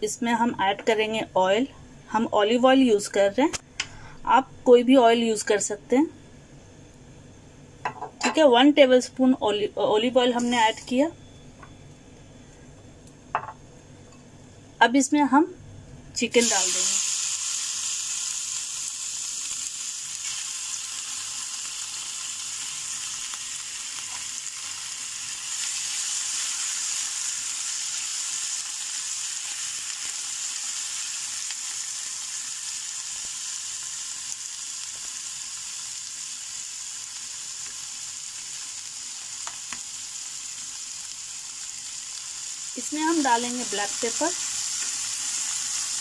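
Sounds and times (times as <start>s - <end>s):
chicken sizzling in a frying pan: 16.3s - 46.0s.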